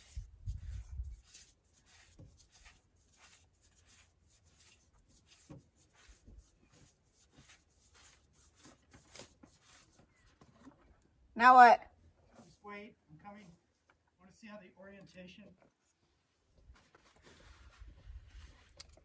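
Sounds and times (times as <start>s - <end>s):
small clicks and rustles of handling: 18.5s - 19.0s.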